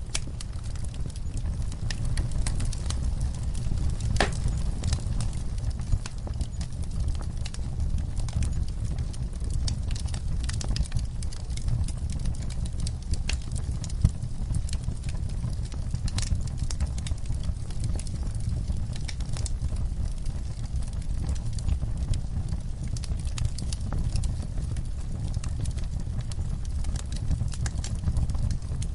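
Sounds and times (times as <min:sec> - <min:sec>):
wood fire crackling and popping: 0:00.0 - 0:28.9.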